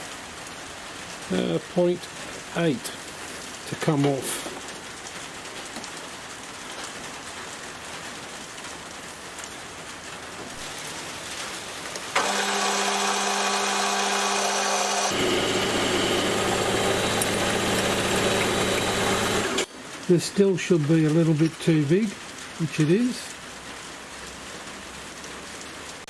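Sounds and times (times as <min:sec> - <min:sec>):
steady hiss: 0:01.0 - 0:04.9, 0:10.4 - 0:12.3
lathe motor hum and whine: 0:10.6 - 0:19.7.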